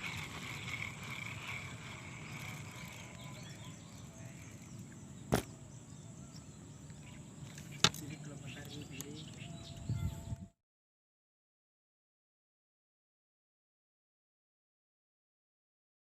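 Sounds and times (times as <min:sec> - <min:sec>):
outdoor background noise: 0:00.0 - 0:10.6.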